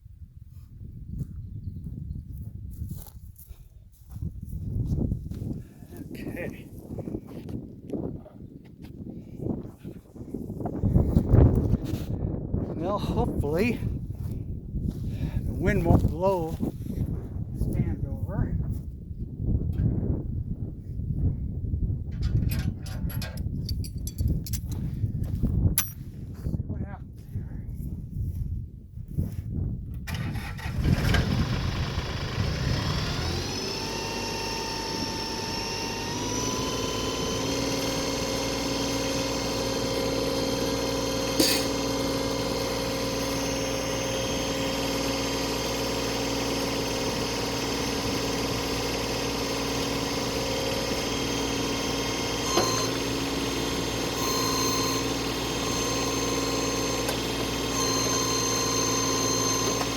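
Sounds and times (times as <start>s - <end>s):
tractor engine running: 12.8s - 16.7s, 22.0s - 26.0s, 29.9s - 59.9s.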